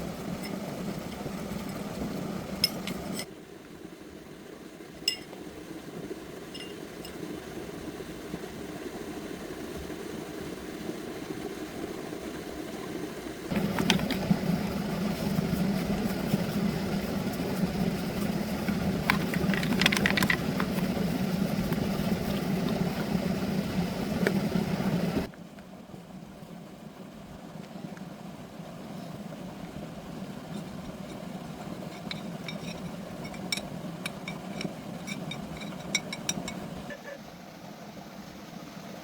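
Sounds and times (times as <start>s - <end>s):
engine running: 13.4s - 25.3s.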